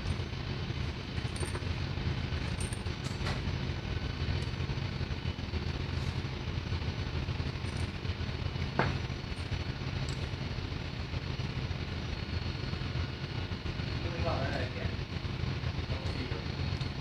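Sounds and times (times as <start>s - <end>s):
machinery drone: 0.0s - 17.0s.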